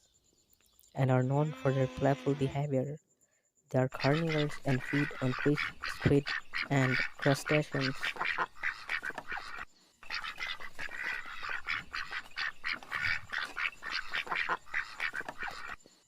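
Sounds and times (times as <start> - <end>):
ducks quacking: 3.9 - 15.8.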